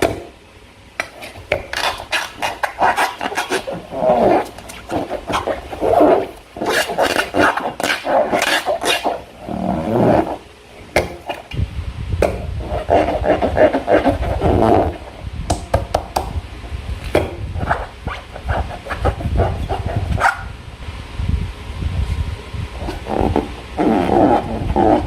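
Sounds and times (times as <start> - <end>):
hands rubbing balloons: 1.0 - 10.4, 12.6 - 15.2, 17.2 - 20.5, 22.8 - 25.0.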